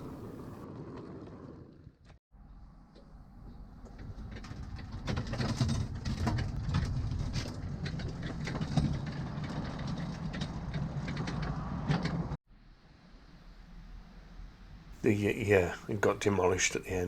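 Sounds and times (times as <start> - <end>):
wheels clicking on rails: 3.0 - 12.4
miniature train rumbling: 3.3 - 12.4.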